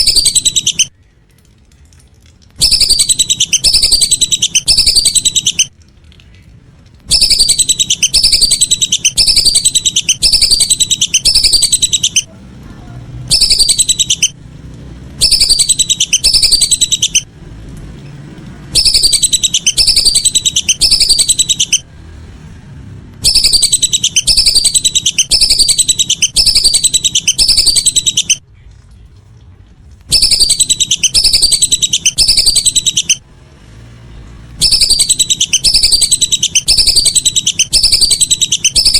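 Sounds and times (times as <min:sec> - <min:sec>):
ducks whistling: 0:00.0 - 0:00.9, 0:02.6 - 0:05.7, 0:07.1 - 0:12.3, 0:13.3 - 0:14.4, 0:15.2 - 0:17.3, 0:18.8 - 0:21.9, 0:23.2 - 0:28.4, 0:30.1 - 0:33.2, 0:34.6 - 0:38.9.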